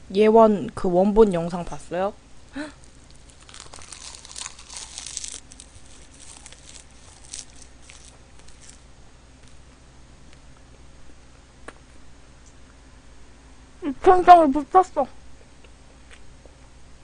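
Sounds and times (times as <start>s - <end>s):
wet crackly chewing: 2.8s - 9.7s.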